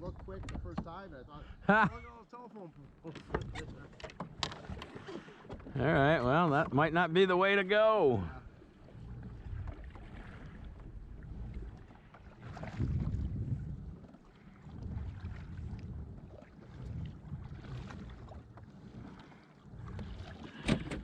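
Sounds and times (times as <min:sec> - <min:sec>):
wind rumbling on microphone: 0:00.0 - 0:02.1, 0:08.4 - 0:19.1
water sloshing around a kayak: 0:00.0 - 0:21.0.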